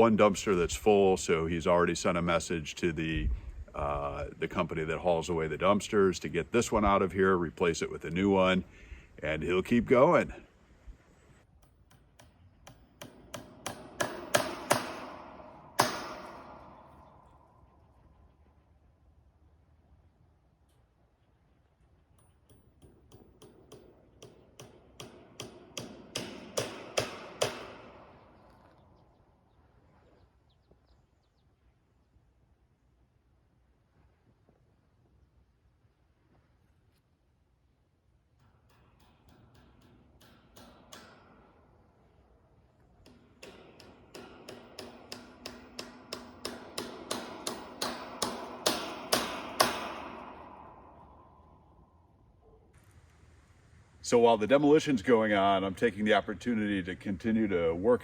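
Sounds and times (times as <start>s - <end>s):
sharp knocks: 11.9s - 17.1s, 43.1s - 51.2s.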